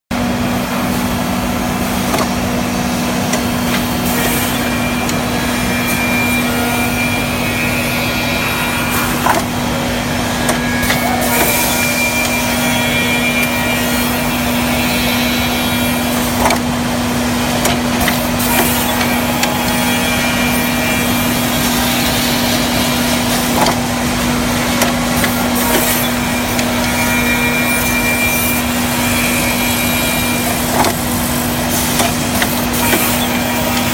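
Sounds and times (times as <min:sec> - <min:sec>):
machine hum: 0:00.1 - 0:33.9
wood being cut: 0:01.6 - 0:33.9
knocks and clicks: 0:02.0 - 0:02.6, 0:09.2 - 0:09.6, 0:16.1 - 0:16.8, 0:17.4 - 0:27.0, 0:31.7 - 0:33.9.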